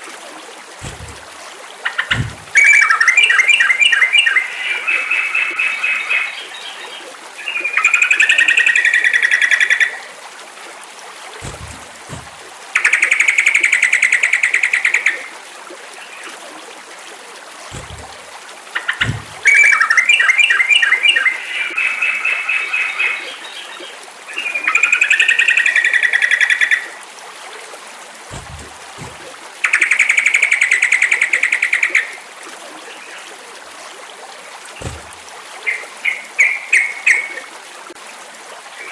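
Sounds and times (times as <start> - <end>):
soft low thumps: 0.8 - 1.4, 2.0 - 2.6, 11.4 - 12.6, 17.7 - 18.3, 19.0 - 19.5, 28.3 - 29.4, 34.8 - 35.4
bulbul song: 1.9 - 6.7, 18.8 - 23.4.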